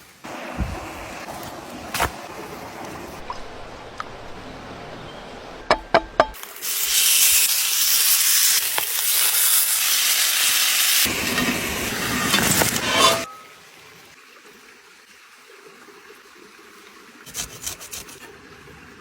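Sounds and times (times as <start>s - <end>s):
fish sizzling in a hot pan: 6.4s - 13.0s.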